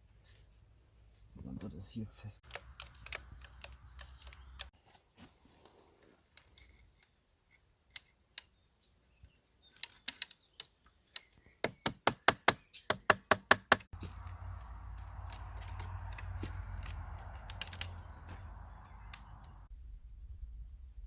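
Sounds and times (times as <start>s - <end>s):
sharp knocks on wood: 11.6s - 14.2s.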